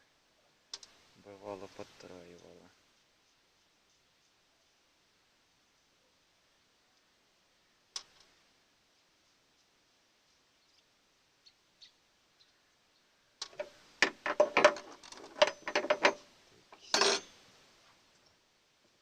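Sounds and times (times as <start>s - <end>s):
metallic clicks and clinks: 13.4s - 16.2s, 16.8s - 17.3s
metal parts scraping clatter: 13.5s - 16.2s, 16.8s - 17.3s.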